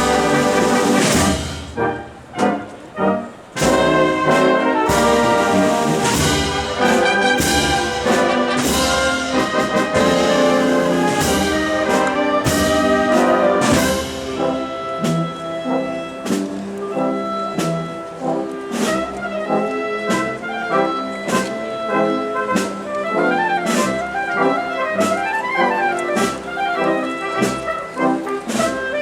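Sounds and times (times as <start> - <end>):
wind band playing a march: 0.0 - 29.0.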